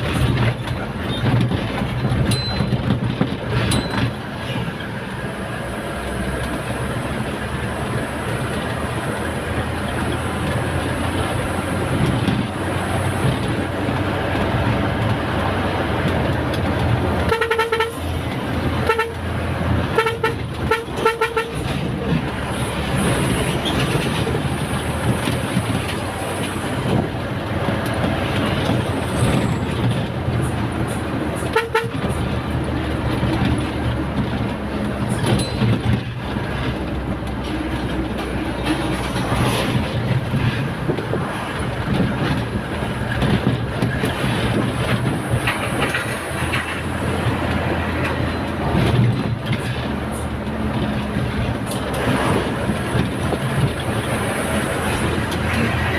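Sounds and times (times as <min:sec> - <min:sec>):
road noise: 0:00.0 - 0:55.9
truck engine: 0:00.0 - 0:55.9
horn toot: 0:17.3 - 0:18.0, 0:18.8 - 0:19.2, 0:19.9 - 0:21.6, 0:31.5 - 0:32.0.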